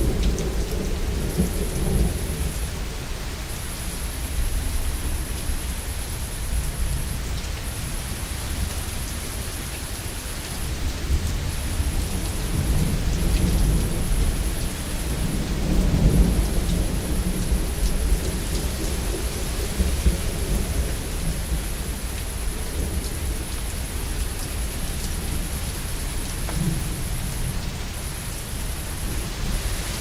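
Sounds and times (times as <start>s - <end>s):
heavy rain: 0.0s - 30.0s.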